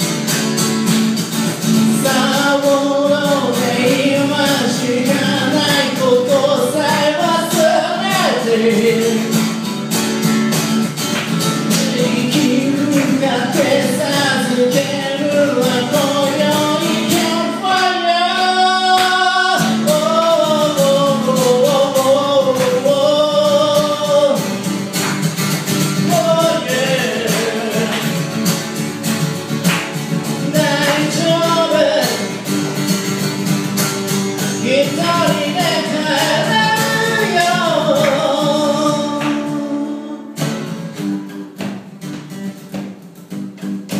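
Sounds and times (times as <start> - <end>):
strummed guitar: 0.0 - 43.9
person singing: 1.8 - 9.5, 11.6 - 24.8, 25.8 - 28.5, 30.3 - 32.8, 34.4 - 40.5.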